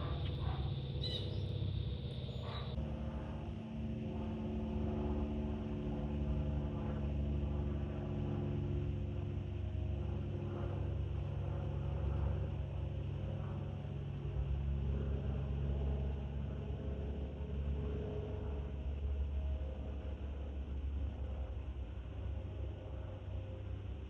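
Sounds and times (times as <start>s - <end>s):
bird chirps: 0.0s - 2.8s
drone of steady tones: 0.0s - 2.8s
aircraft engine rumble: 0.0s - 24.0s.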